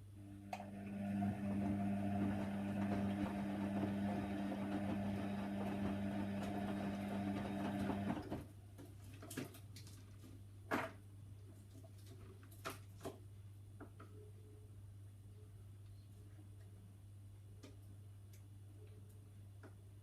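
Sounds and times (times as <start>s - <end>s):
washer dryer motor hum: 0.0s - 8.5s.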